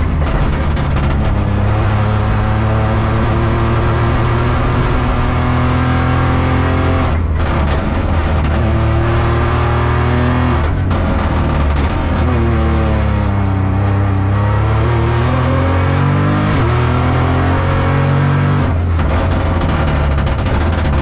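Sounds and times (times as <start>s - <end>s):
car engine running hard: 0.0s - 21.0s.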